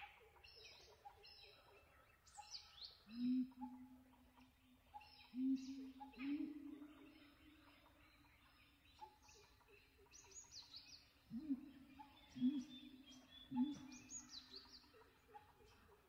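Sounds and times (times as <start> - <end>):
low hooting bird call: 11.3 - 14.5.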